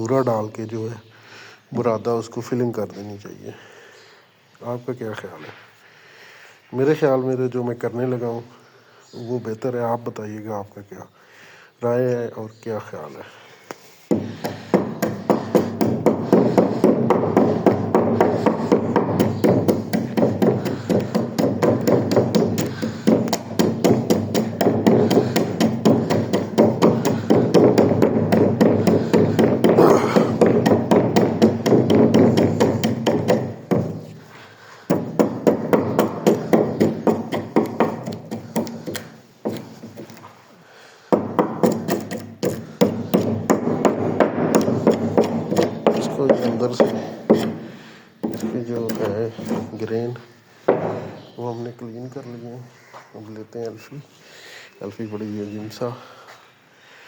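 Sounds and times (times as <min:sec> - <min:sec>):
tool knocking on wood: 0:14.1 - 0:34.2, 0:34.9 - 0:40.3, 0:41.1 - 0:49.8, 0:50.7 - 0:51.3.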